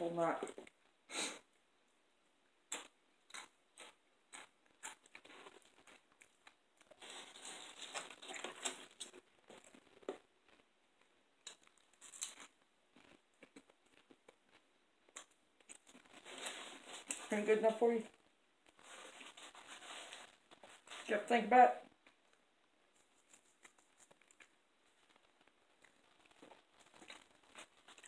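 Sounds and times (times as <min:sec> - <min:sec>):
chips being chewed: 0:02.7 - 0:10.7, 0:11.4 - 0:17.3, 0:22.9 - 0:28.0.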